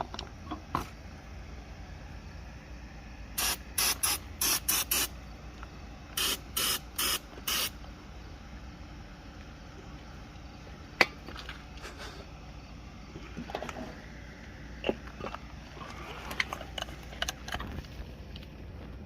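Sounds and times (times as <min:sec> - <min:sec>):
aerosol spray can hissing: 0:03.4 - 0:05.1, 0:06.2 - 0:07.8.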